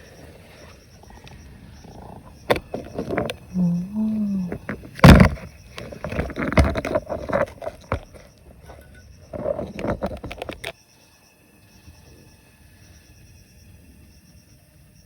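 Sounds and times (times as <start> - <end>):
rocks and gravel knocking and scraping: 0.6 - 10.8
person humming: 3.5 - 4.8.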